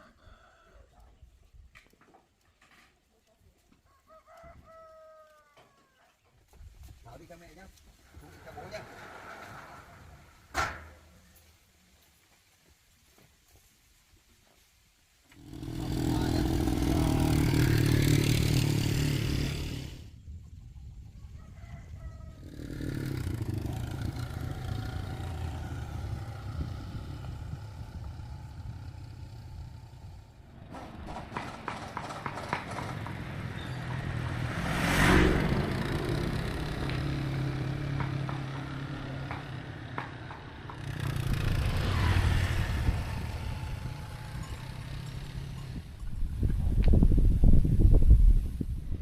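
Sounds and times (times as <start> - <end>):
vehicle engine running: 22.8 - 47.1.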